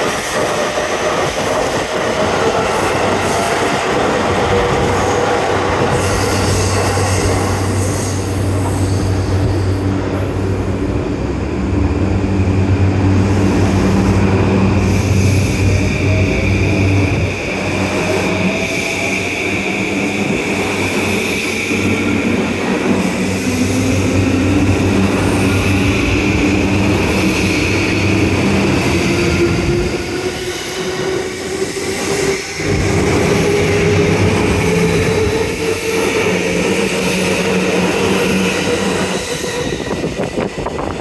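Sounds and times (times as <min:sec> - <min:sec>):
train wheels rumbling on rails: 0:00.0 - 0:41.0.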